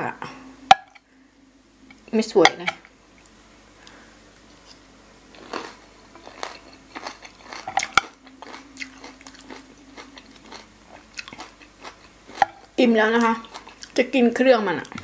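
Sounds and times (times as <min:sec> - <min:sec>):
person chewing: 0:03.2 - 0:14.0.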